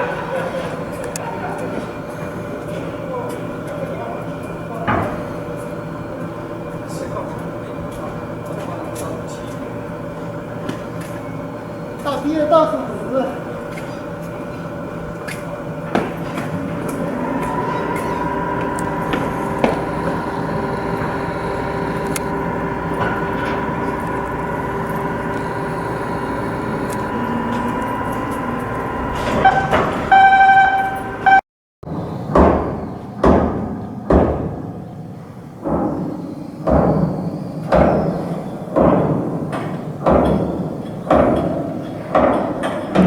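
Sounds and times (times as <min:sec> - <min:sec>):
machinery hum: 0:00.0 - 0:43.0
heavy ringing blows: 0:16.6 - 0:31.4
short horn-like signal: 0:17.3 - 0:31.4.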